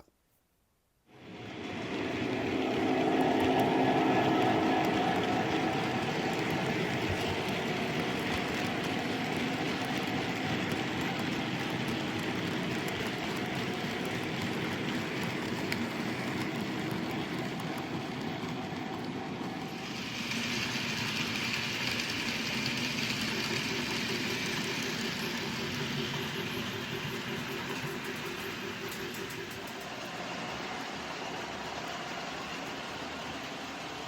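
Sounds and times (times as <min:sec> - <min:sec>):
train rumble: 0:01.2 - 0:34.0
hiss: 0:19.8 - 0:31.3.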